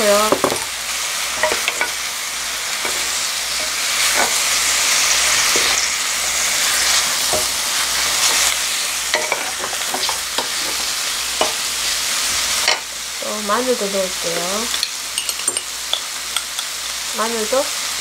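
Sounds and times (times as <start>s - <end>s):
chicken sizzling in a pan: 0.0s - 18.0s
wooden spoons knocking a pan: 0.2s - 0.7s, 9.1s - 10.8s, 14.7s - 16.7s.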